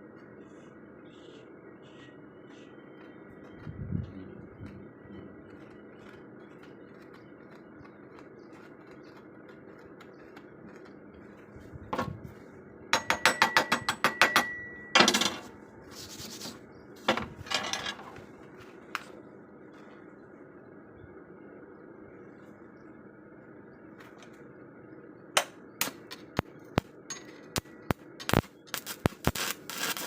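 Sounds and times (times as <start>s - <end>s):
sharp taps on steel: 13.0s - 14.7s.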